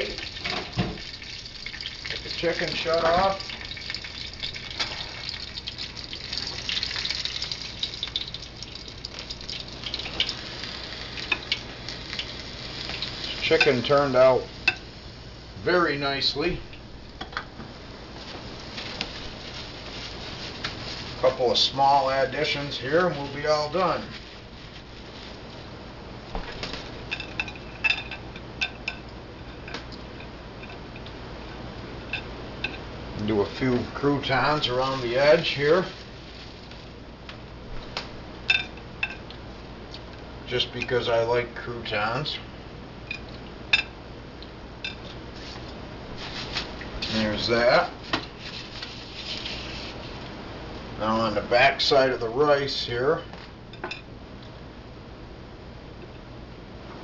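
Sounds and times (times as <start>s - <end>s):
chicken sizzling in frying pan: 0.0s - 15.2s
dishes and utensils clinking: 38.5s - 39.2s.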